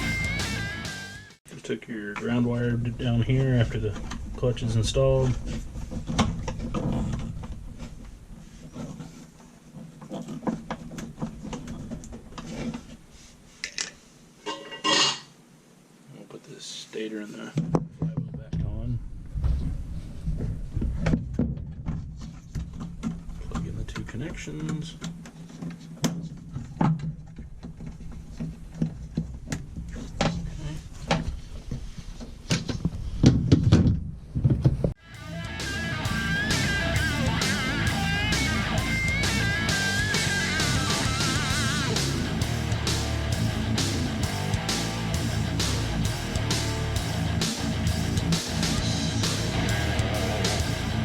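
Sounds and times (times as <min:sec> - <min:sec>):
steady low hum: 0:35.0 - 0:51.0.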